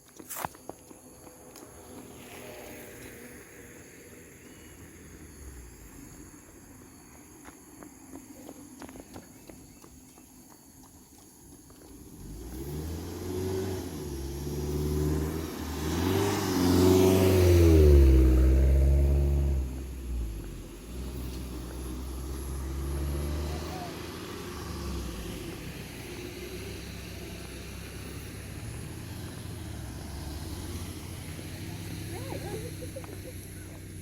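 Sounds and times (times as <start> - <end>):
low traffic rumble: 0.0 - 34.0
vehicle engine passing: 11.9 - 34.0.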